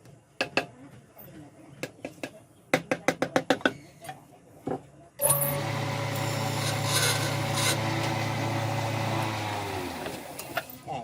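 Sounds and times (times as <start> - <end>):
power tool working wood: 5.2 - 10.5.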